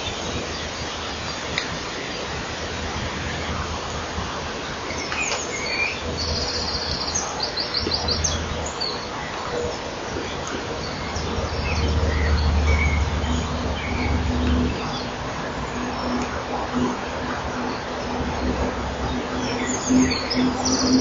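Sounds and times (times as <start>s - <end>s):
microphone hiss and hum: 0.0s - 21.0s
high bird trill and chirps: 19.1s - 21.0s.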